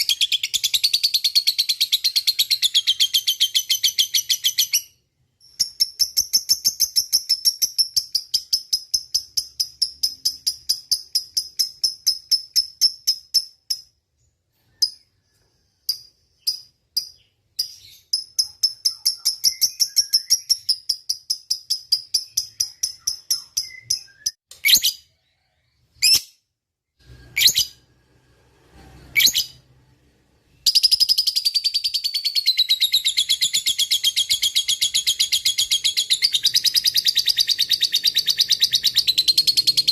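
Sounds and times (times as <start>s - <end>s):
lovebird chattering chirps: 15.9s - 25.0s, 30.6s - 39.9s
sharp bird calls: 30.6s - 39.9s.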